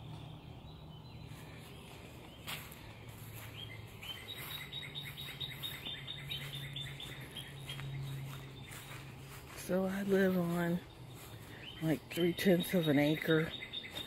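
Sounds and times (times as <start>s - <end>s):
songbird chirping: 0.0s - 14.0s.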